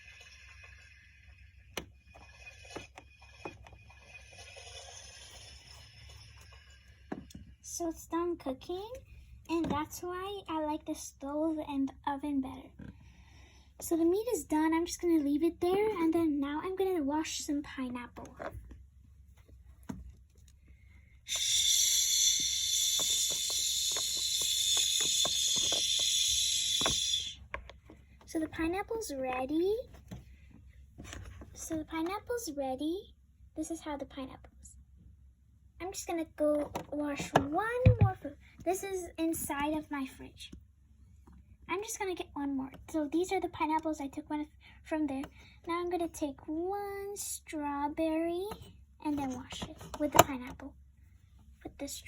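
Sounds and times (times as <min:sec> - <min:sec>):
toy sink water hiss: 0:21.3 - 0:27.4.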